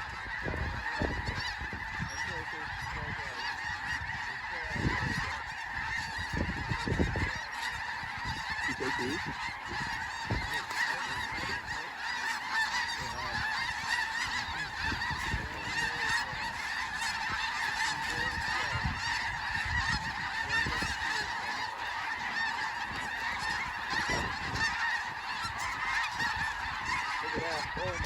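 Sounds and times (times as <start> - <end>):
geese honking: 0.0 - 28.0.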